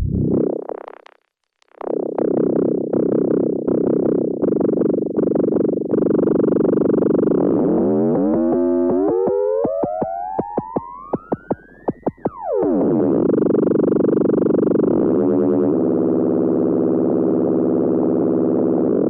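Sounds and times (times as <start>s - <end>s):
drum synthesizer pattern: 0.0s - 0.4s.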